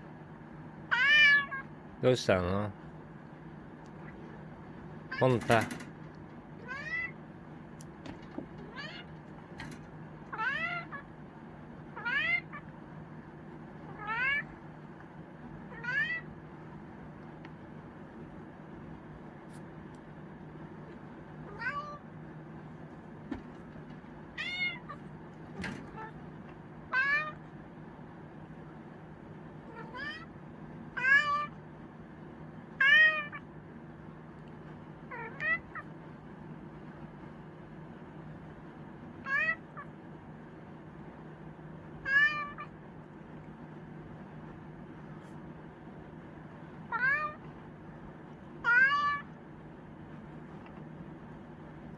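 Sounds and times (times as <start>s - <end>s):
cat meowing: 0.9s - 1.7s, 6.6s - 7.2s, 8.6s - 9.2s, 10.3s - 11.1s, 12.0s - 12.7s, 13.9s - 14.5s, 15.7s - 16.3s, 21.4s - 22.1s, 24.4s - 25.1s, 26.9s - 27.5s, 29.7s - 30.3s, 31.0s - 31.6s, 32.8s - 33.5s, 35.1s - 35.9s, 39.2s - 39.9s, 42.0s - 42.8s, 46.9s - 47.4s, 48.6s - 49.4s.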